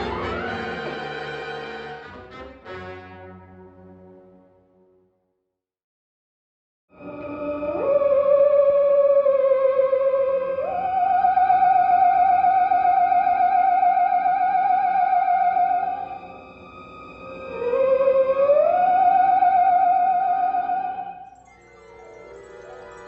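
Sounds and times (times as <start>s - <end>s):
wavering theremin tone: 7.1s - 16.2s, 17.5s - 23.0s.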